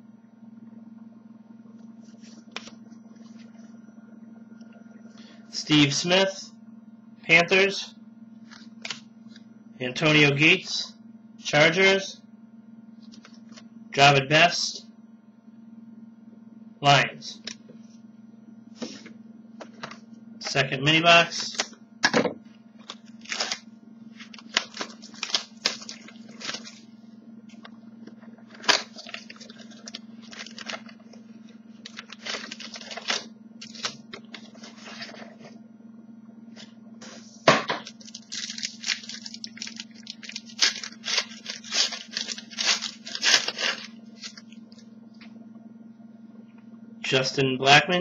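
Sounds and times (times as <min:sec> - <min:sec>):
steady low hum: 0:00.0 - 0:48.0
wrappers rustling and tearing: 0:22.8 - 0:26.8, 0:28.5 - 0:31.2, 0:31.8 - 0:35.3, 0:37.8 - 0:44.6.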